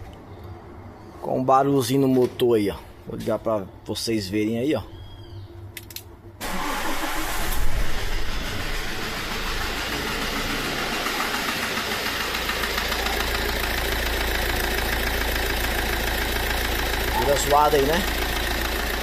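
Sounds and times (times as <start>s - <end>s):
van engine starting and idling: 6.4s - 19.0s
engine knocking: 8.4s - 19.0s.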